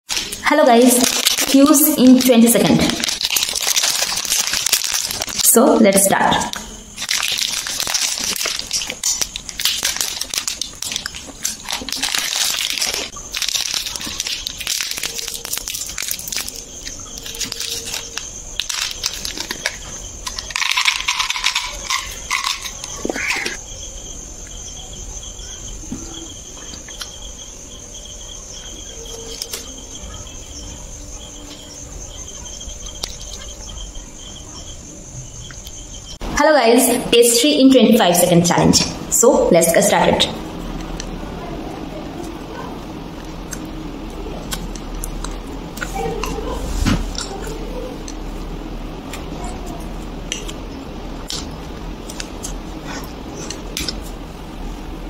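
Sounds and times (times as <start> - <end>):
crackly wrapper handling: 0.1 - 5.5, 6.9 - 23.5, 29.0 - 29.8
chewing and crunching chocolate: 1.0 - 5.5, 6.5 - 23.6, 42.2 - 46.4, 49.0 - 54.2.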